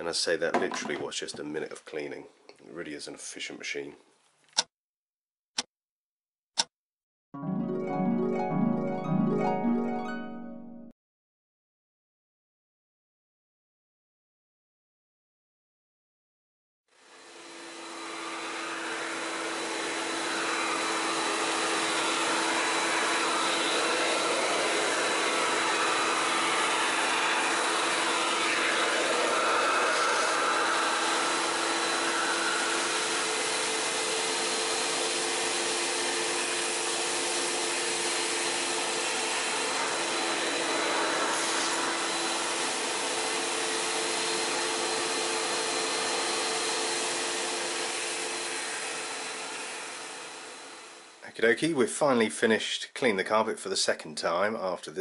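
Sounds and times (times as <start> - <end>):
carpet cleaner vacuum motor: 17.0 - 51.2.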